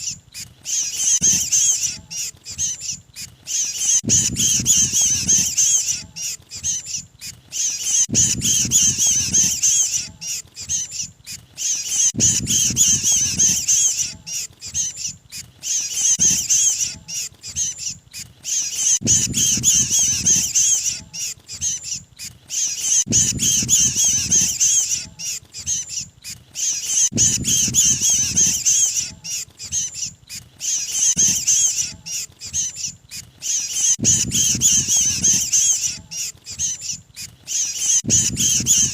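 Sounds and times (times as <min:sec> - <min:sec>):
bird distress squawks: 0:00.0 - 0:38.9.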